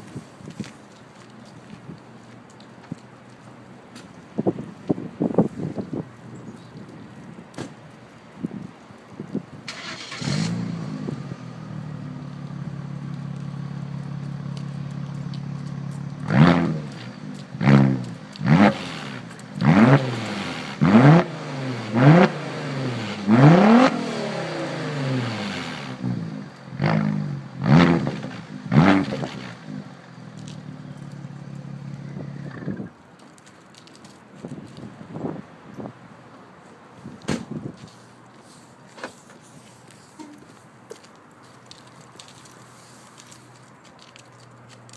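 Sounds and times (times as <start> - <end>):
car engine idling and revving: 9.7 - 33.0.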